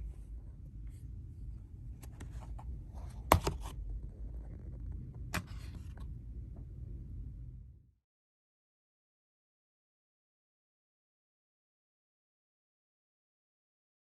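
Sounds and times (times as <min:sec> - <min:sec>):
low room tone hum: 0:00.0 - 0:08.0.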